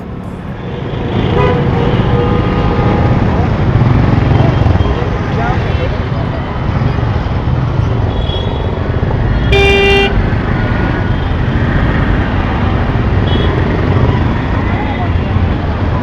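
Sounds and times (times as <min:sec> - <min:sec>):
traffic engines rumbling: 0:00.0 - 0:16.0
loud vehicle horn honking: 0:01.2 - 0:03.0, 0:09.4 - 0:10.2.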